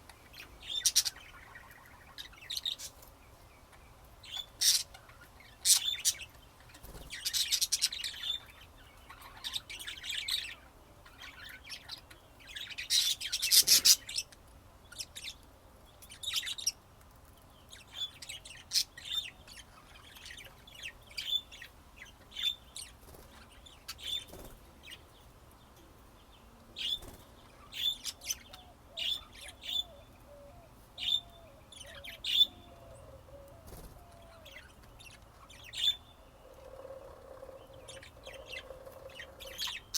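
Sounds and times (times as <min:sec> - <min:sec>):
budgerigars chirping: 0:00.2 - 0:03.0, 0:03.7 - 0:14.4, 0:26.8 - 0:30.4, 0:31.0 - 0:33.2, 0:33.8 - 0:39.9.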